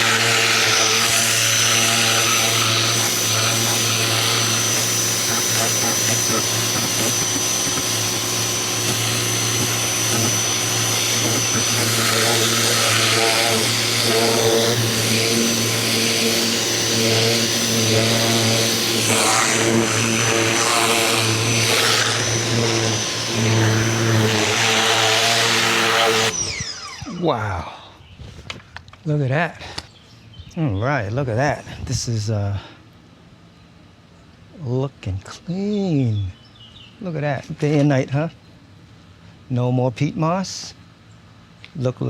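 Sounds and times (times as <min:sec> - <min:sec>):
pressure washer motor humming: 0:00.0 - 0:27.3.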